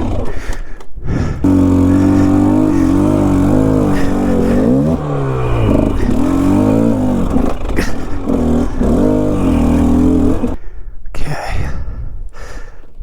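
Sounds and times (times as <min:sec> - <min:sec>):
dirt bike engine revving: 0:00.0 - 0:10.6.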